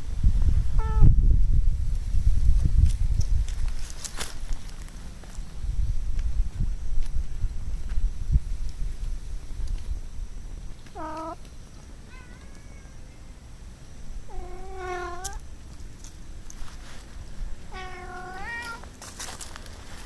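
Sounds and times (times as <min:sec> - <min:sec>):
kitten meowing: 0:11.0 - 0:11.4, 0:12.1 - 0:13.3, 0:14.3 - 0:15.4, 0:17.7 - 0:18.8.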